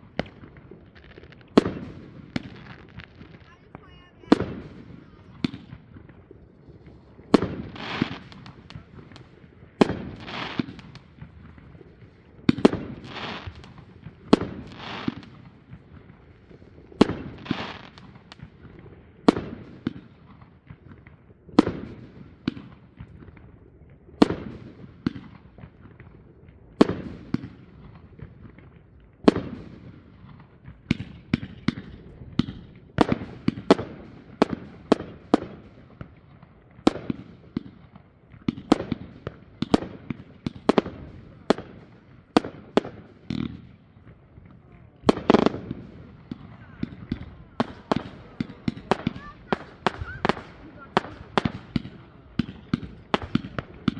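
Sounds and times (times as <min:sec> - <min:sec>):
fireworks bangs: 0:00.0 - 0:23.4, 0:26.8 - 0:53.9
fireworks crackling hiss: 0:00.9 - 0:18.4, 0:45.1 - 0:53.9.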